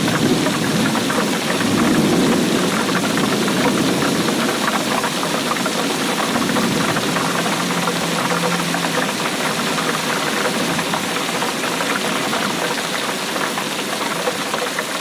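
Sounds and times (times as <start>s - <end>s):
heavy rain patter: 0.0s - 15.0s.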